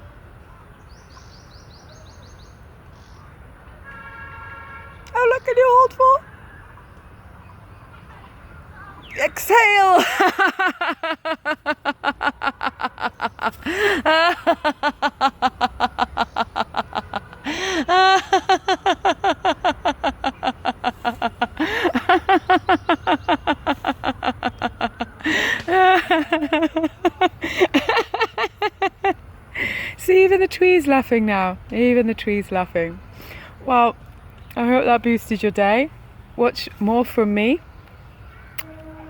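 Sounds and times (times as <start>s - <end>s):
person laughing heartily: 10.0s - 29.2s
quick breath: 33.1s - 33.6s.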